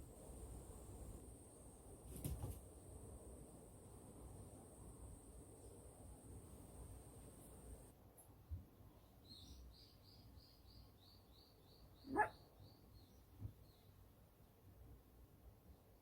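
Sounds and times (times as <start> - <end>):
bird chirping: 9.0 - 14.0
puppy yelp: 12.1 - 12.4.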